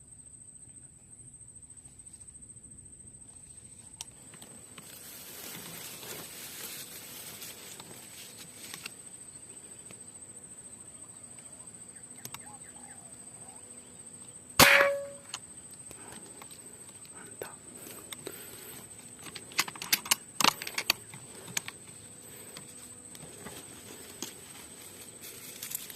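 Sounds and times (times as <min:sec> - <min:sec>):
high insect drone: 0:00.0 - 0:25.9
air rifle shot: 0:14.6 - 0:15.3.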